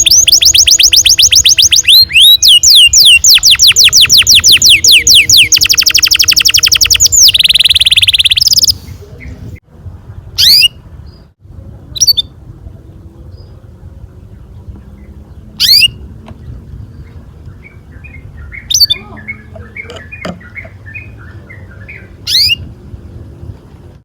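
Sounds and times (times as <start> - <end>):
canary singing: 0.0 - 9.4, 10.4 - 11.3, 12.0 - 12.4, 14.2 - 22.8.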